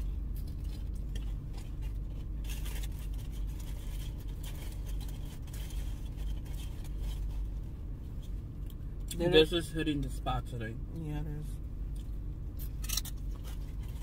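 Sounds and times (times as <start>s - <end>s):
chewing crunchy chips: 0.0s - 7.4s, 11.9s - 14.0s.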